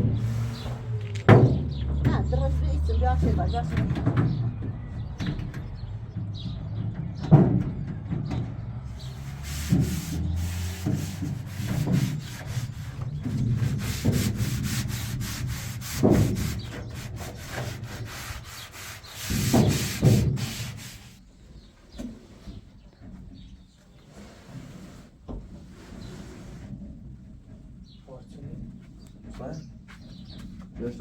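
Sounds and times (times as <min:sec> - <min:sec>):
rapid scraping strokes: 0:00.0 - 0:01.4, 0:08.9 - 0:21.2
dull thumps: 0:00.0 - 0:21.0.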